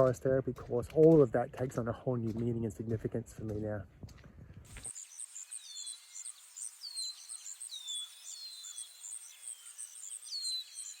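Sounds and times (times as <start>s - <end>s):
very high short bird chirps: 4.9s - 11.0s.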